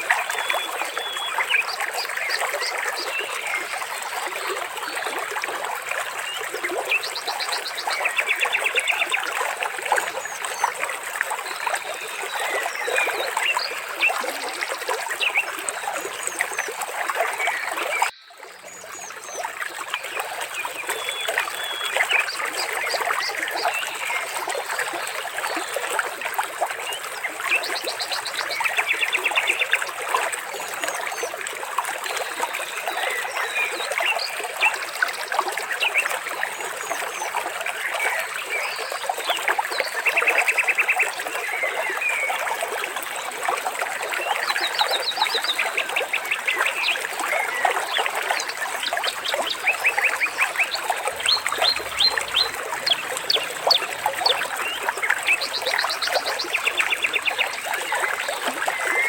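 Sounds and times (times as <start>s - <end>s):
trickling splashing water: 0.0s - 59.0s
birds chirping and trilling: 49.3s - 57.6s.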